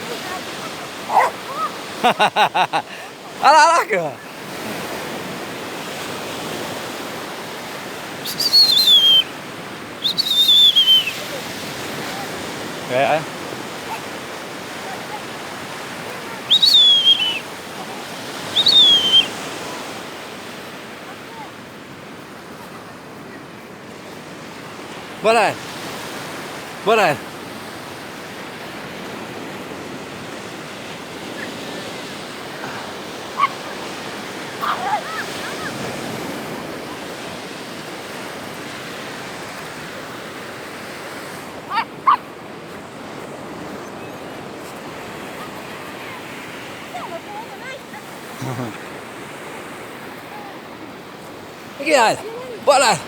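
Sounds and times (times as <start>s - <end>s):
waves rushing: 0.0s - 53.0s
long whistled notes: 8.2s - 9.3s, 10.0s - 11.2s, 16.5s - 17.4s, 18.5s - 19.4s.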